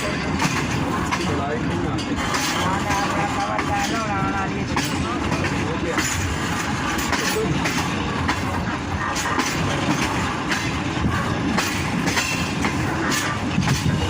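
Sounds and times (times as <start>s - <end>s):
train rumbling along track: 0.0s - 14.0s
wheels clacking over rail joints: 0.0s - 14.0s.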